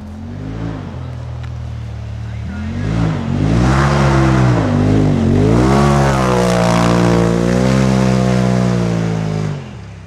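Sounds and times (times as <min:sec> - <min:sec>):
engine revving: 0:00.0 - 0:10.0.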